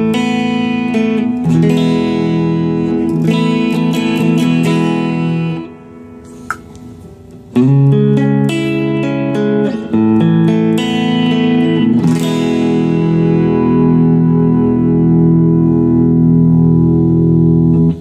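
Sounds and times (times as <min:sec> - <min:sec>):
electric guitar strumming chords: 0:00.0 - 0:18.0.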